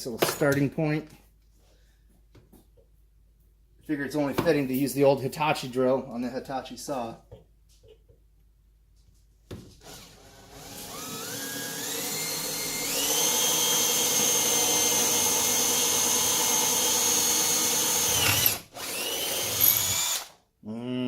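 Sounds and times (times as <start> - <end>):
electric drill whining: 9.8 - 20.4.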